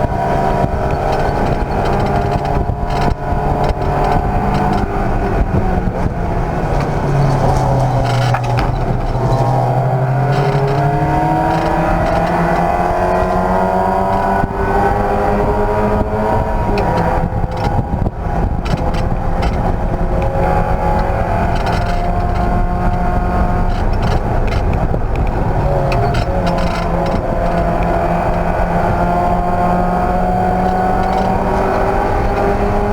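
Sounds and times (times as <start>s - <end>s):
race car engine running hard: 0.0s - 32.9s.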